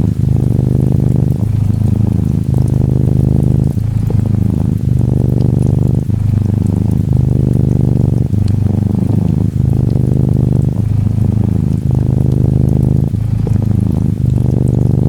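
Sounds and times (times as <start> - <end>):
gentle rain patter: 0.0 - 15.0
kitten purring: 0.0 - 15.0.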